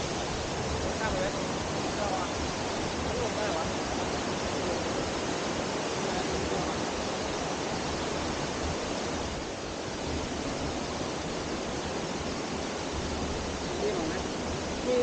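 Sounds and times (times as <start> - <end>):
water rushing down waterfall: 0.0 - 15.0.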